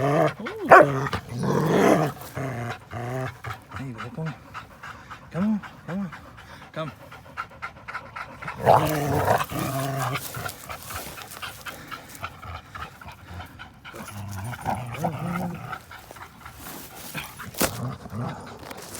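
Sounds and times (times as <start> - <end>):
dog panting: 0.0 - 18.9
dog throaty vocal sounds: 0.0 - 18.9.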